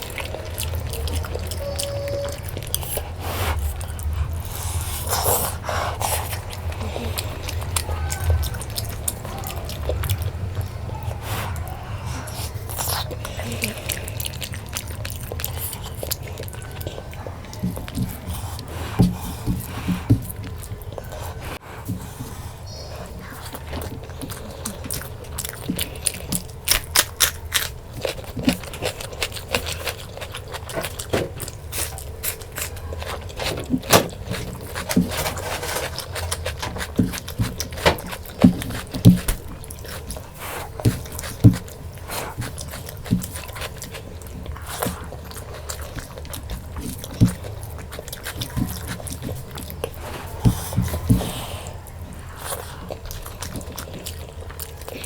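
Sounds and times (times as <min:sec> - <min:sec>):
low steady hum: 0:00.0 - 0:55.0
wet chewing sounds: 0:00.0 - 0:55.0
crunches and scrapes: 0:32.6 - 0:44.0.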